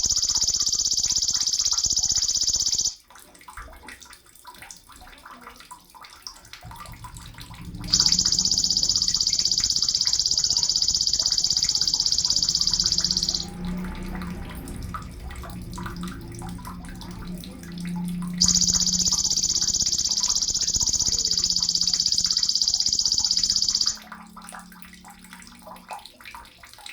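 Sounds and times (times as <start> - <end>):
bird buzzing trill: 0.0 - 3.0, 7.8 - 14.0, 18.4 - 24.0.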